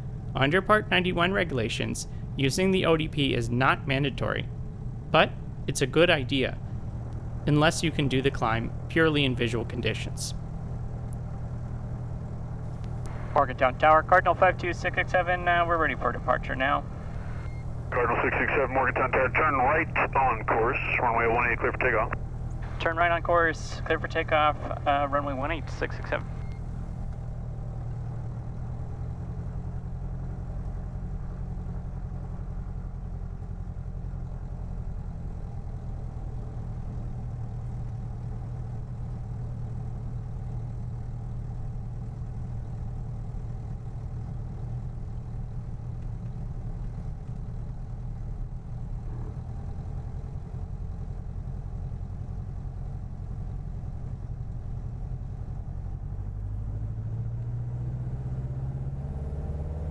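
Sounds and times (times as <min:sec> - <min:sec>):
airplane engine and propeller: 0:00.0 - 0:27.4.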